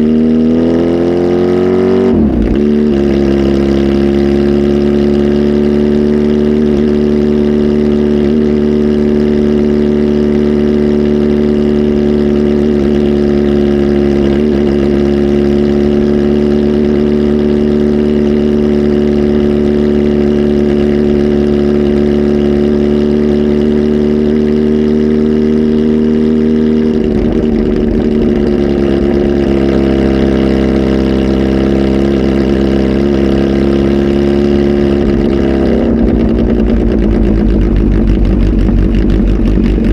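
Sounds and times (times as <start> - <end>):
motorcycle engine running loud: 0.0 - 39.9.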